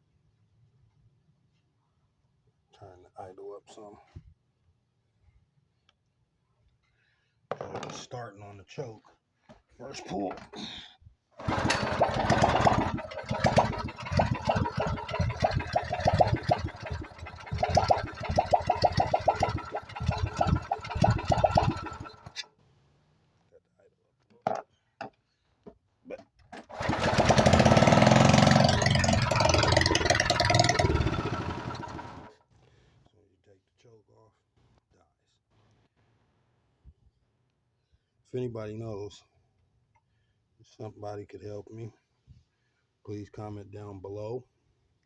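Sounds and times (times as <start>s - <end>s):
engine pull-start: 11.4s - 22.5s, 26.6s - 32.4s
small engine running unevenly: 11.4s - 22.5s, 26.6s - 32.4s.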